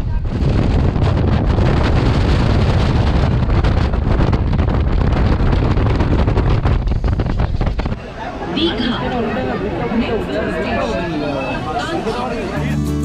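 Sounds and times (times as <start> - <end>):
wind rushing over microphone: 0.0 - 8.2
moving train rumble: 0.0 - 13.0.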